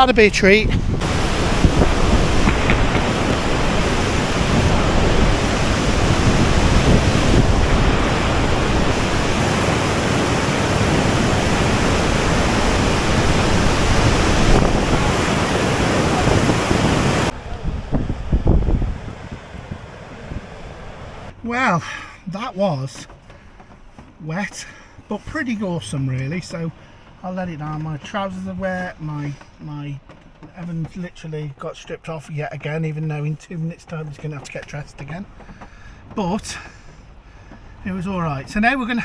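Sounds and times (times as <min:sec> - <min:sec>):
wind gusts on microphone: 0:00.0 - 0:21.3
water rushing from dam outflow: 0:00.9 - 0:21.3.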